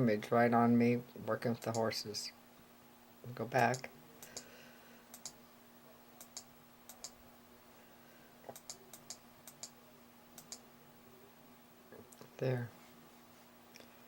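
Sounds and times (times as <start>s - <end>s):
faint steady hum: 0.0s - 14.0s
sharp computer clicks: 1.6s - 1.9s, 3.6s - 4.5s, 5.1s - 5.4s, 6.2s - 7.2s, 8.5s - 9.8s, 10.4s - 10.6s.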